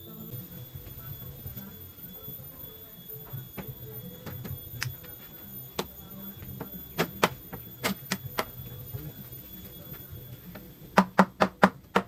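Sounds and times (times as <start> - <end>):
sharp strikes on wood: 11.0 - 12.0.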